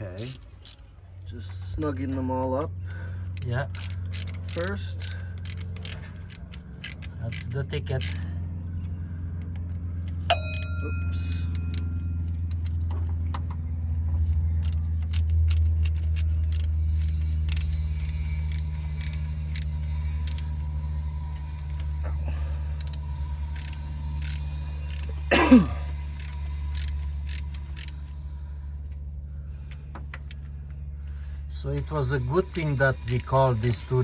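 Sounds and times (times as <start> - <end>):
hand ratchet clicking: 0.0 - 0.8, 3.4 - 8.2, 10.3 - 10.7, 11.3 - 12.8, 14.2 - 20.6, 22.8 - 28.1, 32.4 - 34.0
low hum: 2.6 - 34.0.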